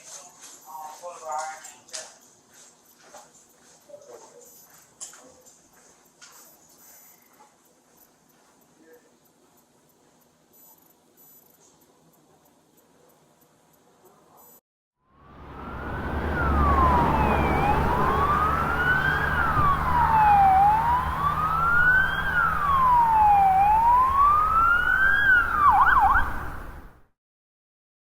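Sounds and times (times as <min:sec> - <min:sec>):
police siren wailing: 0:15.2 - 0:27.0
police siren yelp: 0:15.2 - 0:27.0.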